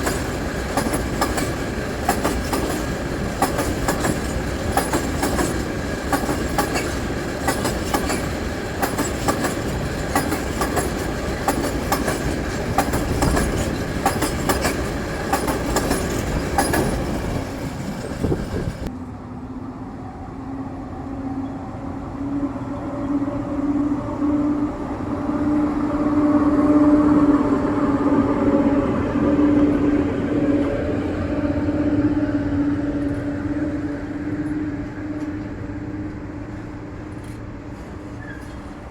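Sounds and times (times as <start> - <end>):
train wheels clattering over rails: 0.0 - 18.9
diesel locomotive engine hum: 0.0 - 38.9.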